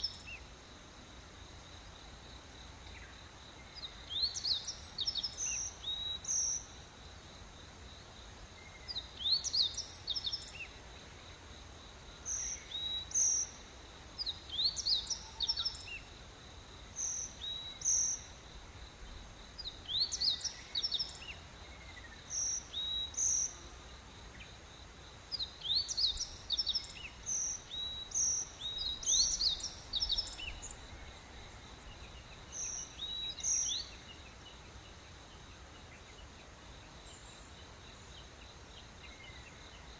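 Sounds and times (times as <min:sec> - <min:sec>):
birds singing: 0:00.0 - 0:00.4, 0:02.6 - 0:06.7, 0:08.6 - 0:10.8, 0:12.2 - 0:16.1, 0:19.0 - 0:23.6, 0:25.4 - 0:39.9
high insect drone: 0:00.0 - 0:39.9.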